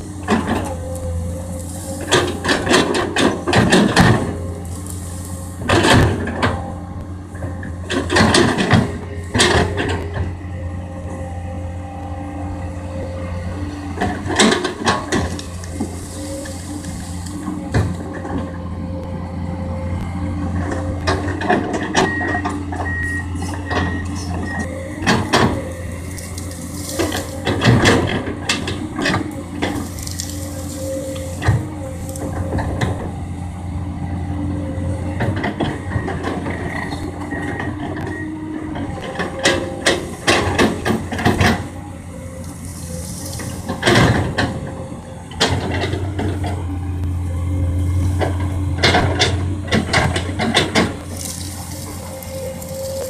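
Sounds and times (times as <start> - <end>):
excavator diesel engine running: 0.0 - 53.0
knocks and clattering: 48.1 - 53.0.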